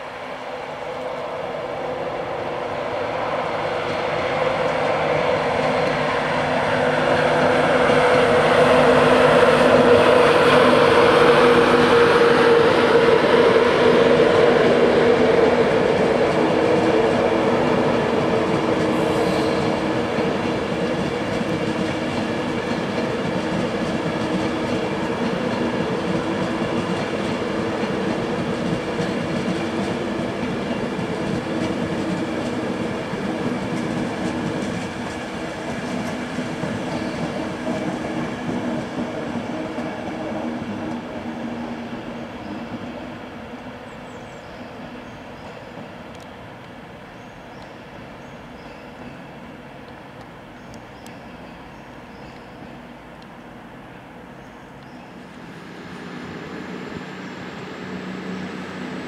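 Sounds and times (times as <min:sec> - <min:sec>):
electric train hum: 0:00.0 - 0:59.0
train coaches rolling: 0:00.0 - 0:59.0.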